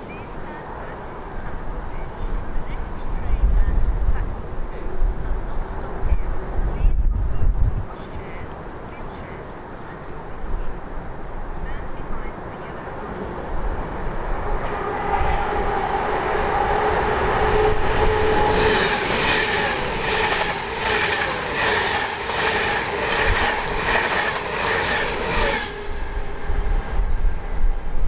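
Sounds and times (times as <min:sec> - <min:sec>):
train passing at speed: 0:00.0 - 0:07.0, 0:07.7 - 0:28.0
train wheels beating over rails: 0:13.8 - 0:28.0.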